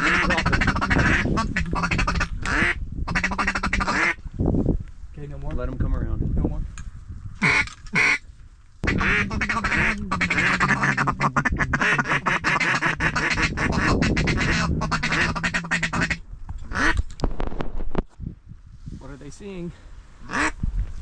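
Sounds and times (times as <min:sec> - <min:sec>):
duck call feeding chatter: 0:00.0 - 0:04.2, 0:07.4 - 0:08.2, 0:08.8 - 0:17.0, 0:20.3 - 0:20.6.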